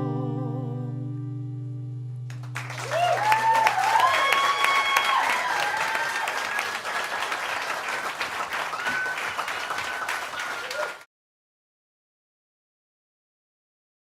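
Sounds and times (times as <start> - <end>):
audience applauding: 2.3 - 11.1.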